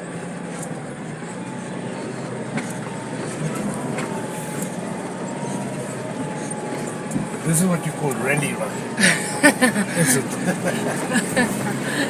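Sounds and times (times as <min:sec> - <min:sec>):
vehicle engine and road noise: 0:00.0 - 0:12.0
vehicle knocks and rattles: 0:02.5 - 0:07.6.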